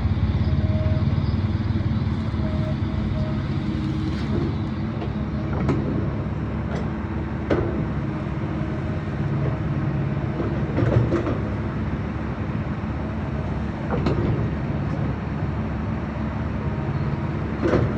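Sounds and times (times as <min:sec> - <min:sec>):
diesel machinery running: 0:00.0 - 0:17.9.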